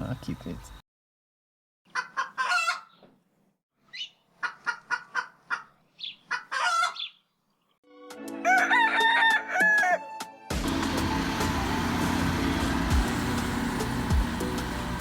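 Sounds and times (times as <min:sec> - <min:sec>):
chickens clucking: 0:01.9 - 0:03.1, 0:04.4 - 0:07.2
rooster crowing: 0:08.4 - 0:10.2
loud steady noise: 0:10.6 - 0:15.0.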